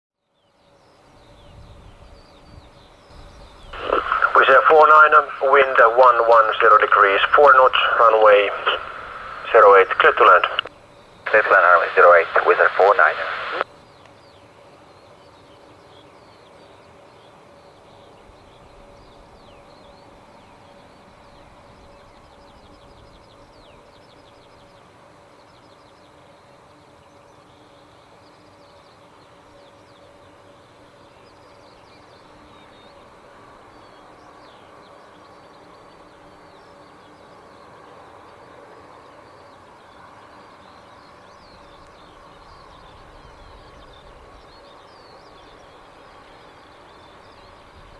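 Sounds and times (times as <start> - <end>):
small birds chirping: 0.9 - 10.7
faint steady hum: 3.2 - 13.6.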